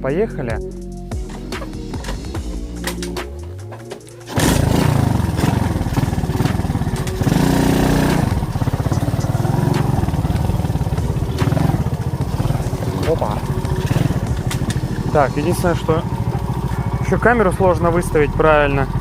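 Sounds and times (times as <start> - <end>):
moped engine running: 1.1 - 19.0.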